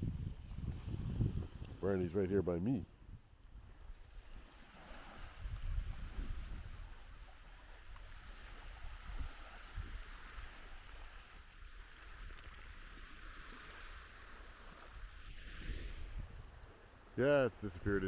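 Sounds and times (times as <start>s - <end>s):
wind gusting on microphone: 0.0s - 2.3s, 2.9s - 16.7s
surf on the shore: 3.7s - 18.0s.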